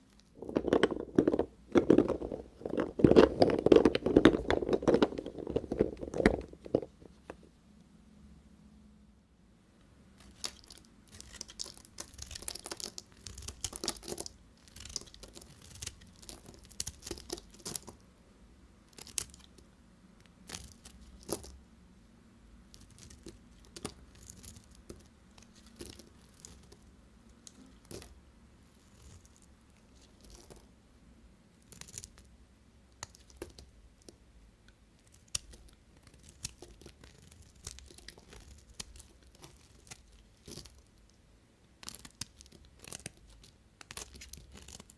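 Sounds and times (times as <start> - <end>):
knife cutting soap crackling: 10.2 - 18.0, 35.0 - 41.0, 41.8 - 44.9.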